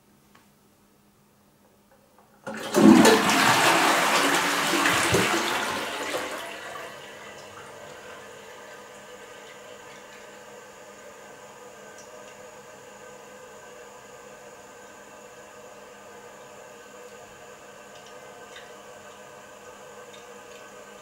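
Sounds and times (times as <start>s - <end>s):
toilet flushing: 2.4s - 12.5s, 15.3s - 21.0s.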